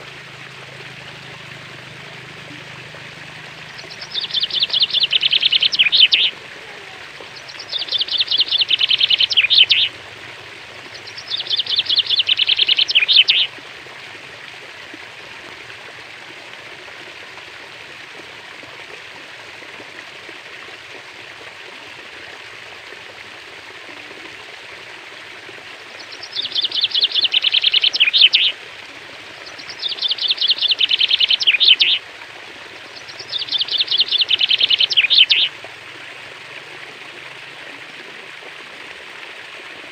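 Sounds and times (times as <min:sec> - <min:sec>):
flowing water rushing: 0:00.0 - 0:39.9
songbird trilling: 0:03.5 - 0:09.9, 0:10.9 - 0:13.5, 0:26.0 - 0:28.6, 0:29.4 - 0:32.0, 0:33.0 - 0:35.5.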